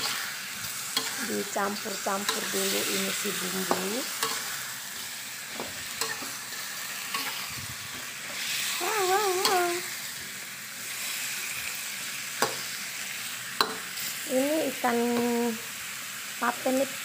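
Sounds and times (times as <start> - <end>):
metal spatula scraping a pan: 0.0 - 8.8
food sizzling in a wok: 0.0 - 17.0
wavering voice-like tone: 8.8 - 9.8.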